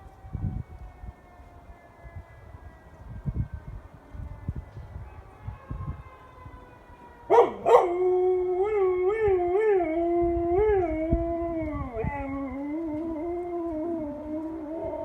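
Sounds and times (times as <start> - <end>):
dog yelping and howling: 7.3 - 15.0.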